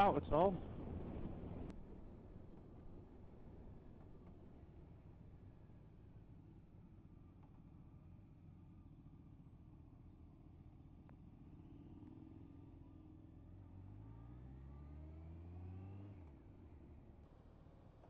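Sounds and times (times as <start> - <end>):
engine accelerating: 11.7 - 18.0.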